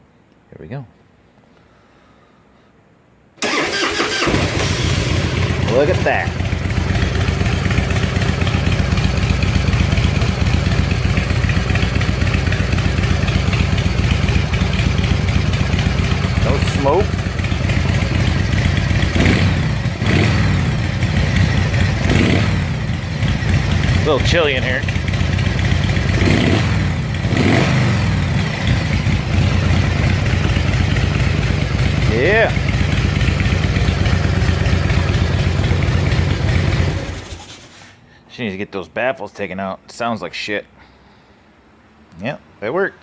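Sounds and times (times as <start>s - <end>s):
motorcycle engine idling: 3.4s - 37.5s.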